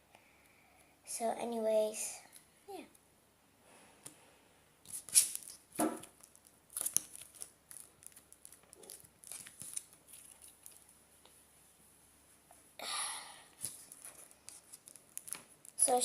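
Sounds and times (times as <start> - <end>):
slime clicking and crackling: 4.9 - 10.9, 13.6 - 16.0.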